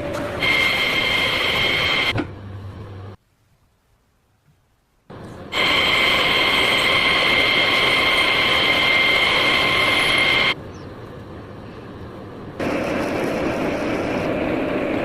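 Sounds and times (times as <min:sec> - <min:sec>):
background noise: 0:02.2 - 0:05.6.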